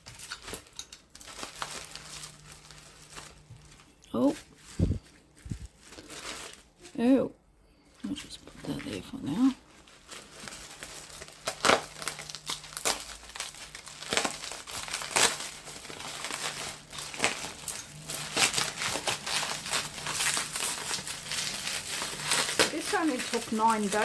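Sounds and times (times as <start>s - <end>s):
packing wrap crinkling: 0.0s - 7.2s, 8.0s - 24.0s.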